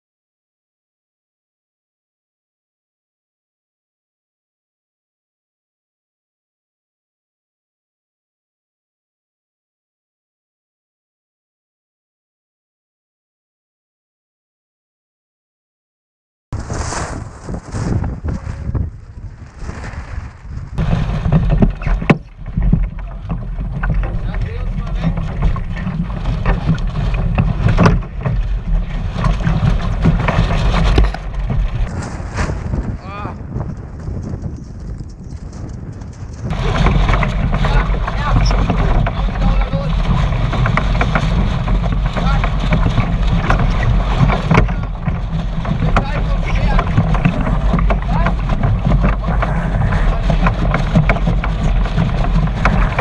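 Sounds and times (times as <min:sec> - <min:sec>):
water splashing against hull: 0:16.6 - 0:33.0, 0:36.4 - 0:53.0
wind buffeting microphone: 0:16.6 - 0:53.0.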